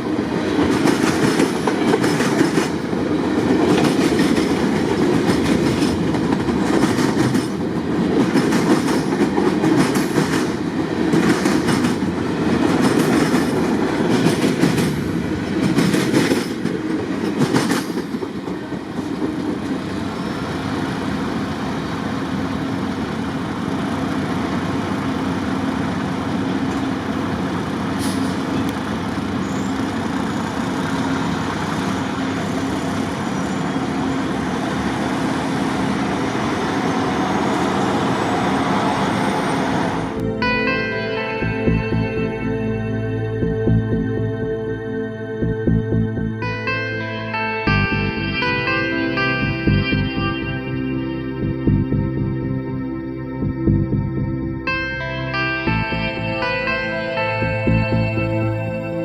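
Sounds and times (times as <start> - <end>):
train rumble: 0.0 - 48.6
freight train wheels clicking on rail joints: 0.6 - 19.9.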